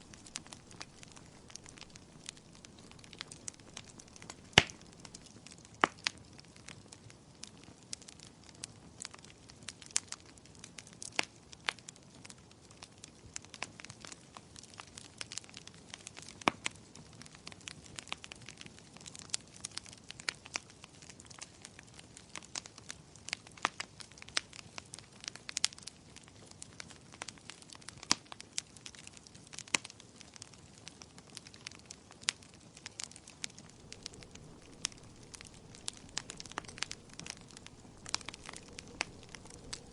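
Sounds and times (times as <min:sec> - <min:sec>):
soft low hiss: 0:00.0 - 0:05.5, 0:33.4 - 0:39.9
wood fire crackling: 0:00.0 - 0:06.1, 0:31.4 - 0:31.7, 0:33.0 - 0:39.9.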